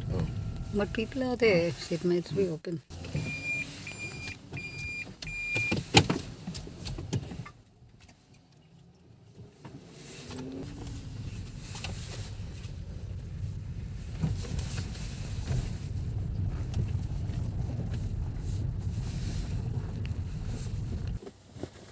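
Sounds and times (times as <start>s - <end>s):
car engine and road rumble: 0.0s - 21.8s
car warning chime: 3.2s - 5.8s.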